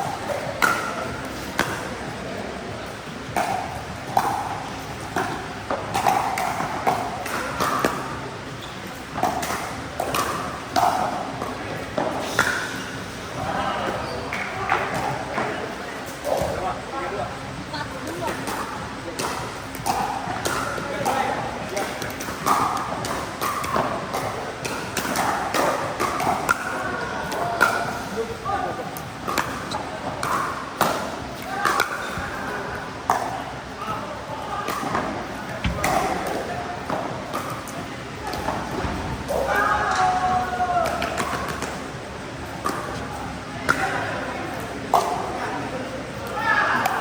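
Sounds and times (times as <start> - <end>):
ball bouncing on court: 35.6 - 39.5.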